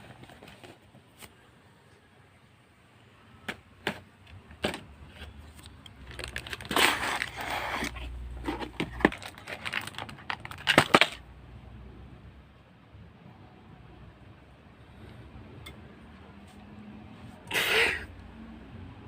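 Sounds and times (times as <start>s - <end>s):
packaging rustling: 4.6s - 11.2s.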